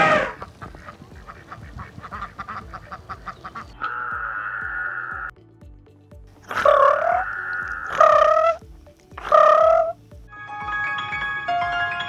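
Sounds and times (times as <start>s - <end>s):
short repeated animal calls: 2.1s - 5.3s, 6.5s - 8.6s, 9.2s - 10.0s.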